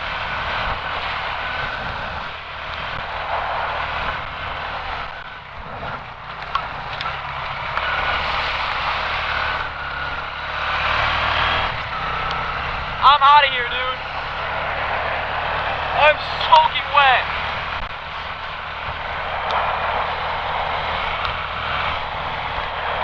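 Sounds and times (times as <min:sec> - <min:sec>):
wind on microphone: 0:00.0 - 0:07.5
quad engine running: 0:00.0 - 0:23.0.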